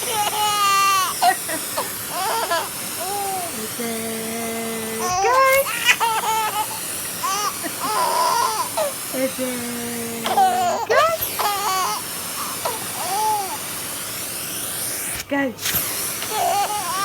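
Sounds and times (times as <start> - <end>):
baby laughing: 0.0 - 3.6, 5.0 - 9.0, 10.3 - 13.6, 16.3 - 17.0
vacuum cleaner hum: 0.0 - 17.0.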